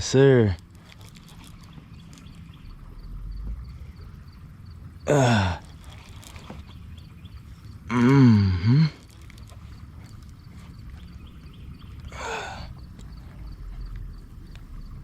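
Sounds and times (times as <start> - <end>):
man groaning: 5.1 - 5.6, 7.9 - 9.0.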